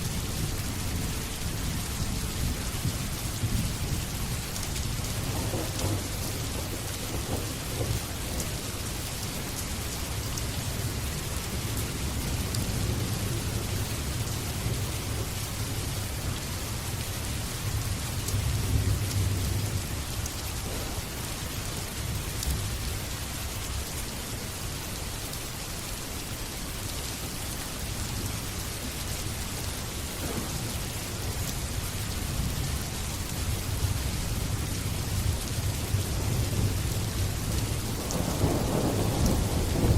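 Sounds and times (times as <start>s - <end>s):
rain pattering: 0.0s - 39.9s
low rolling thunder: 0.2s - 16.2s, 17.3s - 22.8s, 30.2s - 39.9s.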